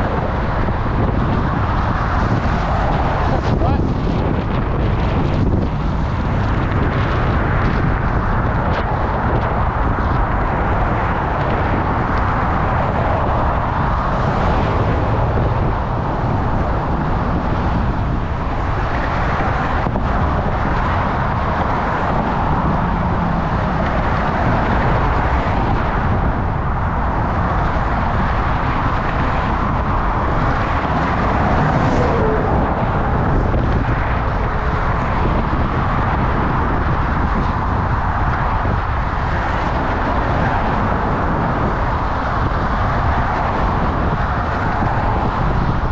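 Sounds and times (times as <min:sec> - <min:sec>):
road and traffic noise: 0:00.0 - 0:45.9
wind buffeting microphone: 0:00.0 - 0:45.9.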